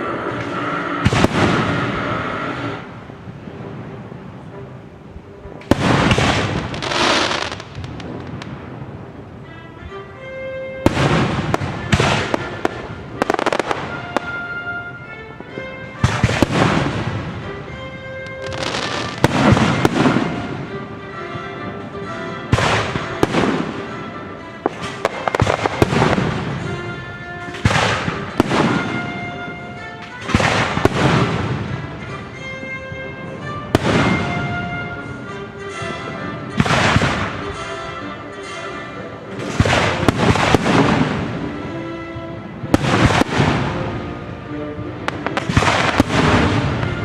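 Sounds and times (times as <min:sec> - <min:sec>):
fireworks bangs with echo: 0:00.0 - 0:04.8, 0:05.6 - 0:09.3, 0:10.8 - 0:20.8, 0:22.5 - 0:32.6, 0:33.4 - 0:35.2, 0:36.5 - 0:37.7, 0:39.4 - 0:41.9, 0:42.6 - 0:44.0, 0:45.1 - 0:47.0
orchestral music: 0:00.0 - 0:47.0.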